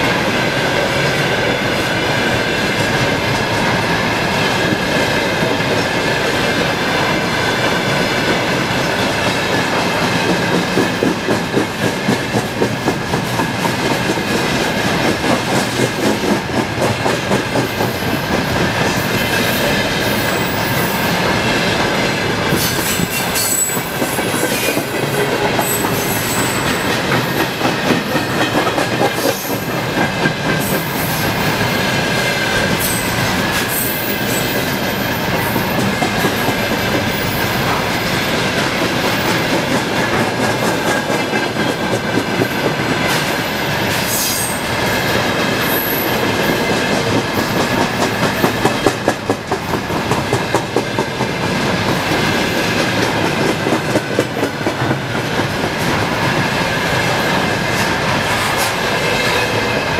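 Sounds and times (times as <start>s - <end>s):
train wheels clattering over rail joints: 7.6s - 59.8s
high wheel squeal: 22.6s - 24.7s, 25.6s - 26.9s.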